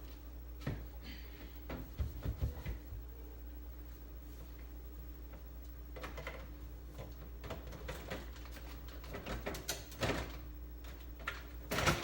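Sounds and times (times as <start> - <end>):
refrigerator drawers clicking and knocking: 11.2 - 12.0.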